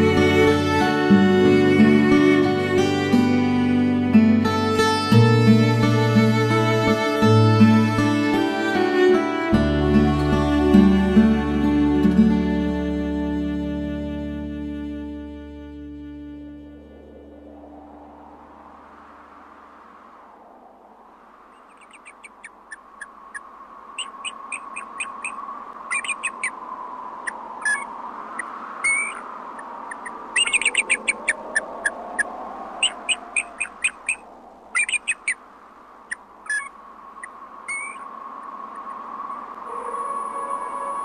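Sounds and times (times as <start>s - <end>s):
faint steady tone: 0.0s - 41.0s
birds chirping: 21.4s - 41.0s.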